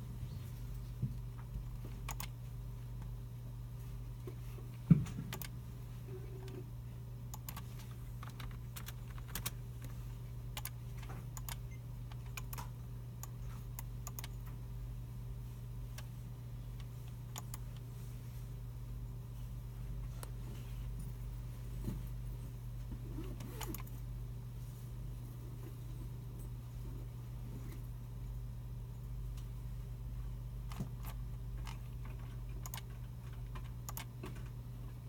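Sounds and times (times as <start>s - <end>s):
steady low hum: 0.0s - 35.0s
computer keyboard keystrokes: 1.4s - 2.4s, 5.3s - 5.6s, 7.3s - 14.4s, 30.6s - 34.6s.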